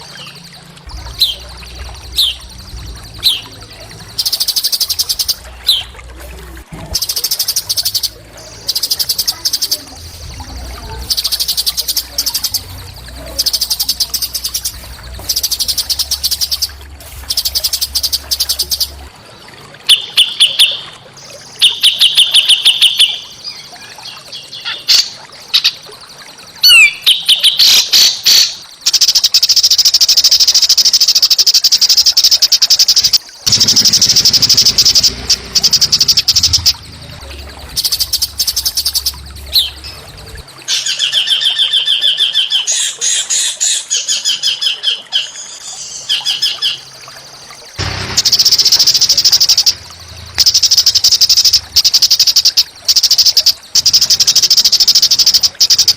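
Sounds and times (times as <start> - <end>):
songbird singing: 0.0 - 29.9, 32.2 - 55.9.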